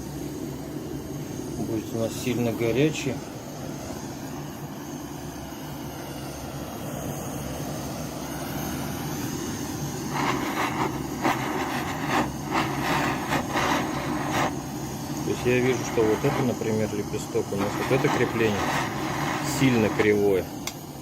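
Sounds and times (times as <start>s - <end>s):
gas torch flame: 0.0s - 21.0s.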